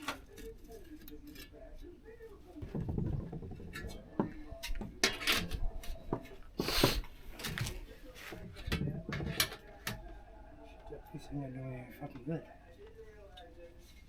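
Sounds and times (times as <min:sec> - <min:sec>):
sheet metal knocks and clanks: 0:02.6 - 0:06.4, 0:08.6 - 0:09.7.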